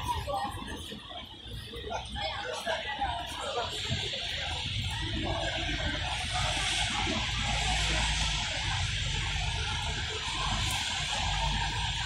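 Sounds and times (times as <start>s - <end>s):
low city rumble: 0.0s - 12.0s
rain on wet street: 3.1s - 12.0s.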